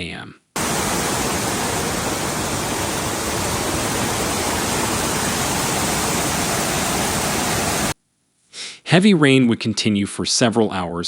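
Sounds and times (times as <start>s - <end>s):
water rushing: 0.6s - 8.0s.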